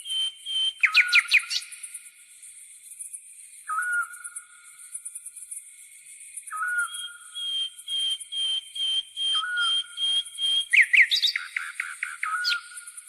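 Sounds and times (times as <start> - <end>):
birds whistling: 0.0 - 1.7, 3.7 - 4.2, 6.5 - 12.9.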